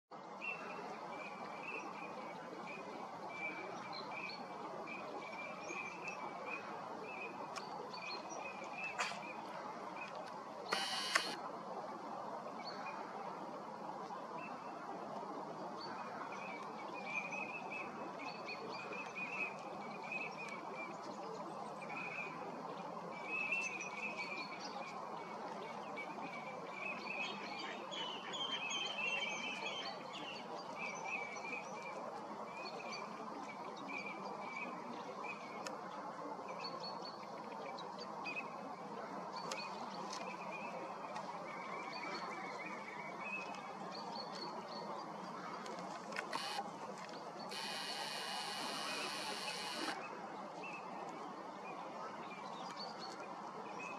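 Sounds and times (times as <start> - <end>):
faint bird chirps: 10.7 - 11.4, 46.3 - 46.6, 47.5 - 50.0
sharp burst of noise: 10.7 - 11.4, 47.5 - 50.0
steady background hiss: 10.7 - 12.2, 47.5 - 50.0.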